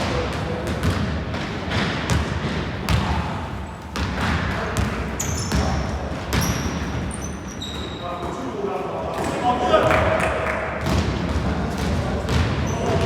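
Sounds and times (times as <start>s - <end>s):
basketball bouncing on gym floor: 0.0s - 8.4s, 10.8s - 13.0s
sneaker squeaks: 4.8s - 8.6s, 12.3s - 13.0s.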